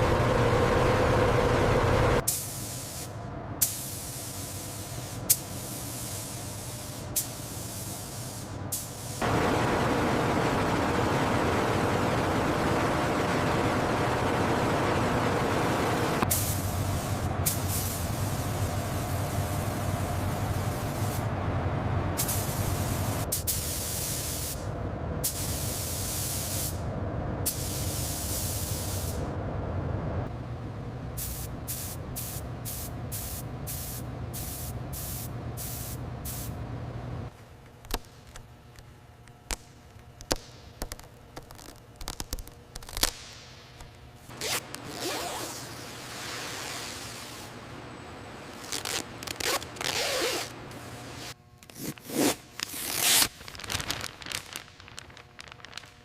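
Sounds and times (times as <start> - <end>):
low machine hum: 0.0 - 2.3, 4.5 - 45.0.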